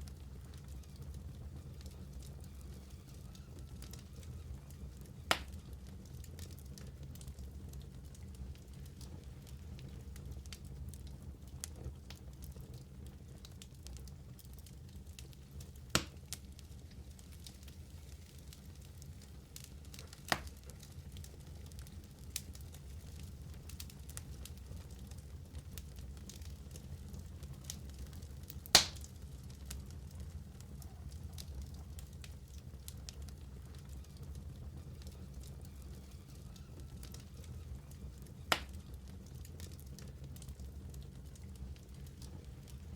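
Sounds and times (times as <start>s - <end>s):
wood fire crackling: 0.0s - 42.9s
loud pop of fire: 5.0s - 5.7s, 15.9s - 16.4s, 20.2s - 20.8s, 28.6s - 29.2s, 38.5s - 38.9s.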